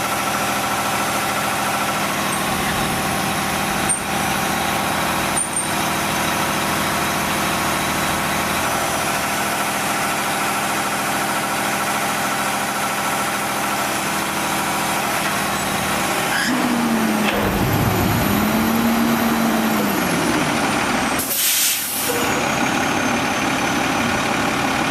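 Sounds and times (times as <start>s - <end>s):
truck diesel engine revving: 0.0s - 24.9s
air brake hiss: 21.2s - 22.3s.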